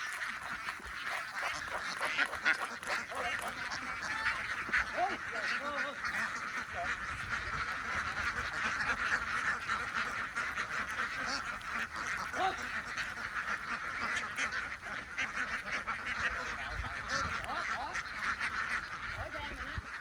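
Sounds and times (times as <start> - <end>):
flock of ducks quacking: 0.0 - 20.0.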